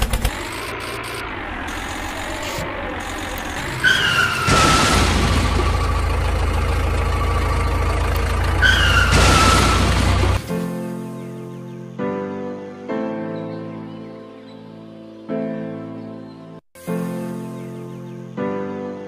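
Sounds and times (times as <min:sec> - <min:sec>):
vehicle engine rumble: 0:00.0 - 0:10.8
short falling squeal: 0:03.6 - 0:05.9, 0:08.6 - 0:10.3
music: 0:10.5 - 0:19.0.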